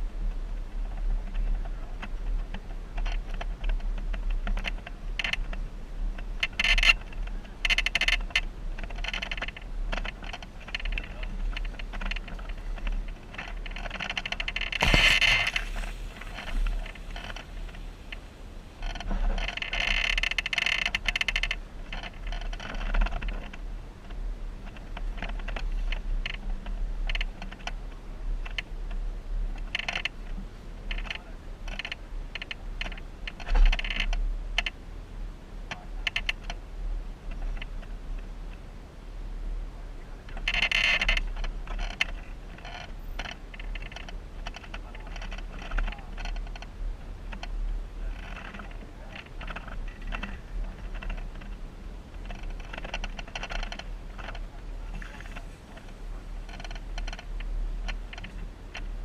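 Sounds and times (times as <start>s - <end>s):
low vehicle rumble: 0.0s - 59.0s
loose parts rattling: 7.6s - 23.3s.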